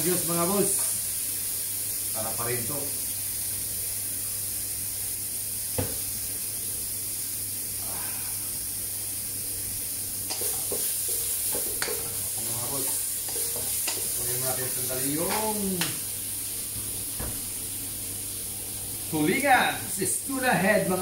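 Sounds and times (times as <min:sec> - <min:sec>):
food sizzling in a wok: 0:00.0 - 0:21.0
knock: 0:05.8 - 0:06.0
spatula scraping a wok: 0:10.3 - 0:14.2.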